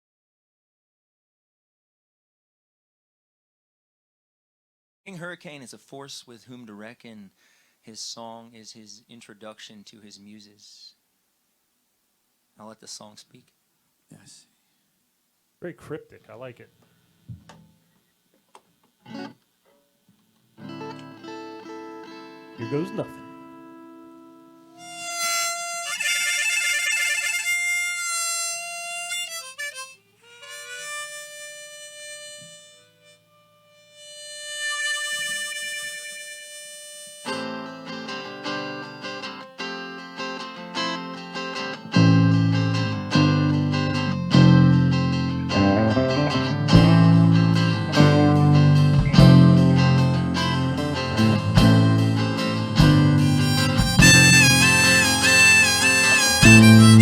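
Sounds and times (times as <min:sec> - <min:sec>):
guitar strumming chords: 0:19.1 - 0:19.4, 0:20.6 - 0:25.2, 0:37.2 - 0:57.0
harmonica playing: 0:20.6 - 0:57.0.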